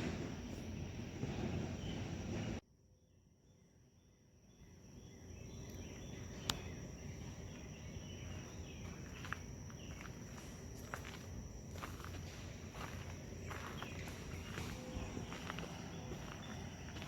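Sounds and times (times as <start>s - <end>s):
high-pitched insect drone: 5.0s - 17.0s.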